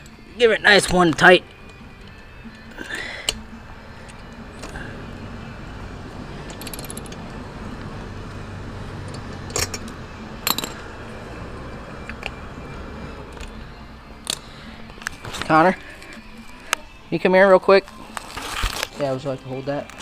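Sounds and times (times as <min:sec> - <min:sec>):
wrench clinking on metal: 0:06.5 - 0:07.2, 0:09.1 - 0:10.8.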